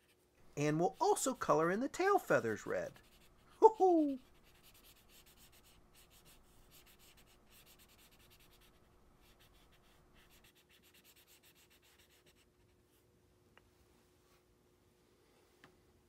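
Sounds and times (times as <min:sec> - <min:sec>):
marker scribbling on paper: 0:00.0 - 0:12.5.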